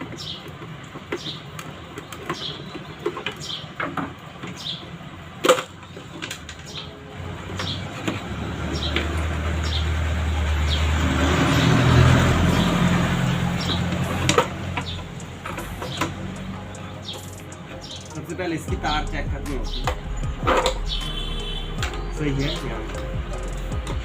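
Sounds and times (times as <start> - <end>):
motor vehicle passing: 0.0 - 24.0
tools clicking and tapping: 13.6 - 18.3.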